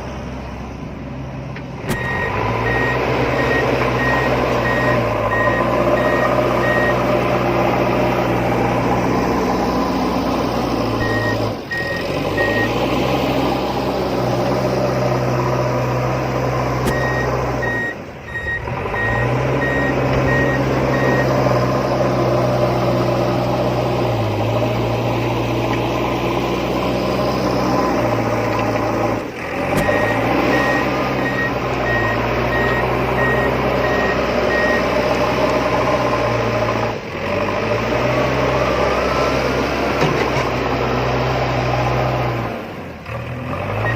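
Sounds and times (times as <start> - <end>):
reversing alarm beeps: 2.0 - 7.0, 11.0 - 12.8, 16.9 - 21.4, 29.8 - 34.9.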